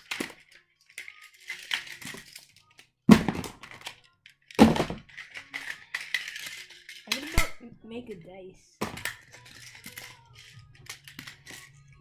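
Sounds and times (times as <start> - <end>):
magnetic pieces clicking: 3.6 - 7.4, 8.9 - 12.0.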